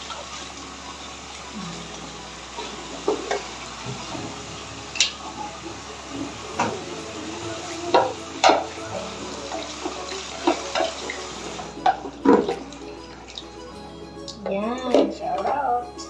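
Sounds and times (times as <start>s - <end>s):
watery hiss of carpet washing: 0.0s - 11.7s.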